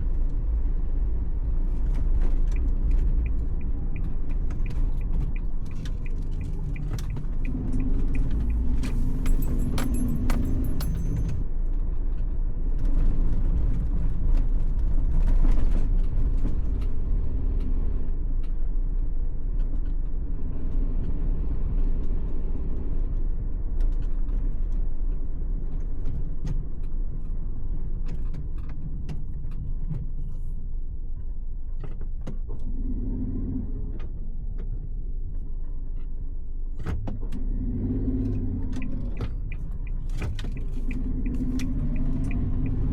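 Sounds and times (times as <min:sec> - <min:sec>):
car engine and road noise: 0:00.0 - 0:42.9
small rattles and clicks: 0:01.6 - 0:21.1.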